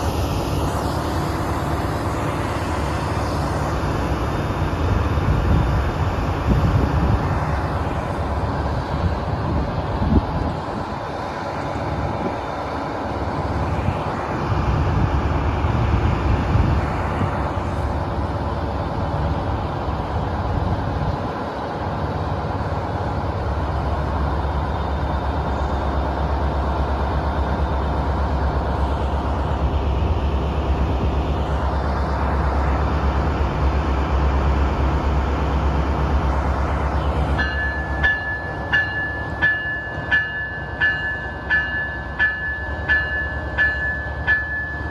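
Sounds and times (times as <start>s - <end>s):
train rumbling past: 0.0s - 44.9s
high ringing tone: 37.3s - 44.9s.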